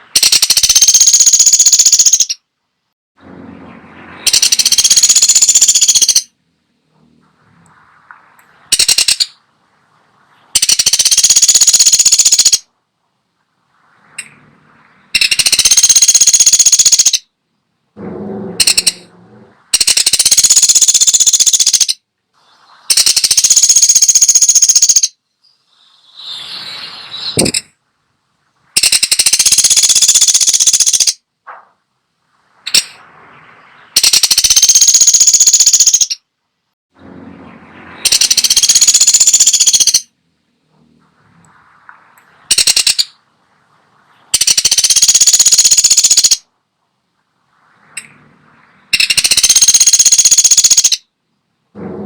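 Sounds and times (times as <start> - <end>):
woodpecker rattling calls: 0.0 - 2.5, 4.2 - 6.4, 8.2 - 9.5, 10.4 - 12.7, 15.1 - 17.3, 18.6 - 22.0, 22.9 - 27.7, 28.8 - 31.2, 32.6 - 33.0, 33.6 - 36.2, 37.9 - 40.1, 42.5 - 43.2, 44.3 - 46.5, 48.9 - 51.1.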